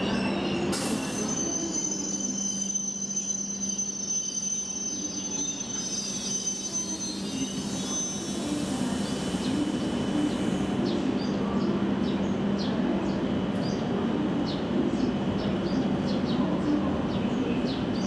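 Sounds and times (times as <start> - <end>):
train electrical hum: 0.0 - 18.0.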